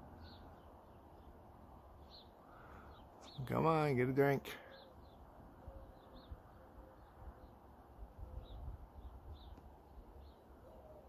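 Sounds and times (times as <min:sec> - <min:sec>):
faint bird chirps: 0:04.5 - 0:11.0.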